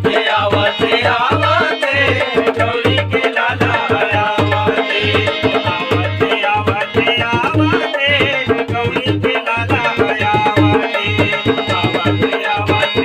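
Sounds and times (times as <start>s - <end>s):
tabla: 0.0s - 13.0s
wavering melody: 4.8s - 8.2s.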